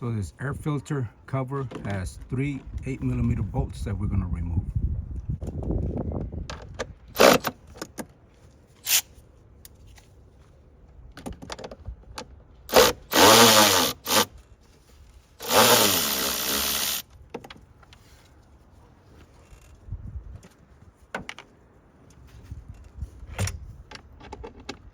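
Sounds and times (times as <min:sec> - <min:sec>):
cordless power tool whirring: 0:12.7 - 0:14.3, 0:15.4 - 0:17.1.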